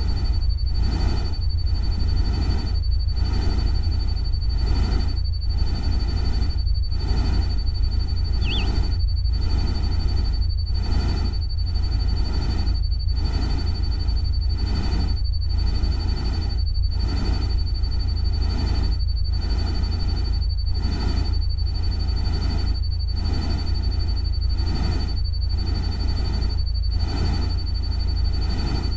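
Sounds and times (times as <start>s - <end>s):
thin high tone: 8.4s - 8.9s.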